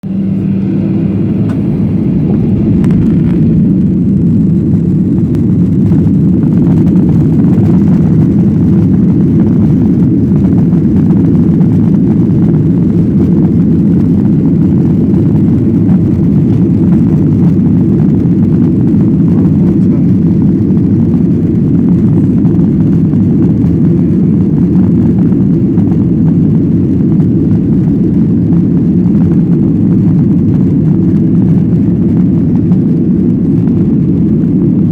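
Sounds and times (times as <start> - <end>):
jet engines rumbling in cabin: 0.0 - 34.9.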